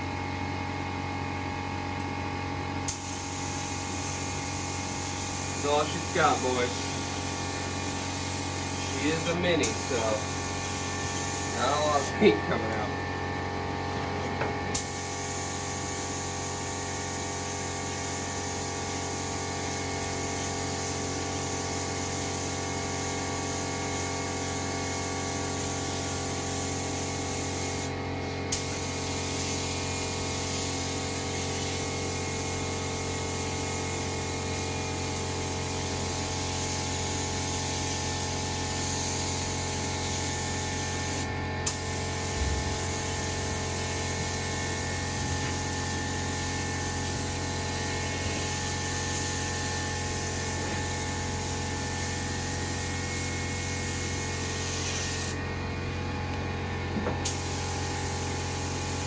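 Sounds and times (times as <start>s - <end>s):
air spray gun hissing: 2.8s - 13.1s, 14.7s - 55.4s, 57.2s - 59.0s.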